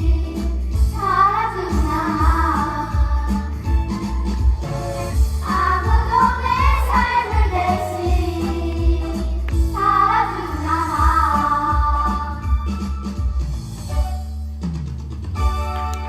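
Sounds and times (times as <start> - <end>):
children singing together: 0.0 - 3.8, 5.4 - 12.6
recorded accompaniment with steady beat: 0.0 - 16.0.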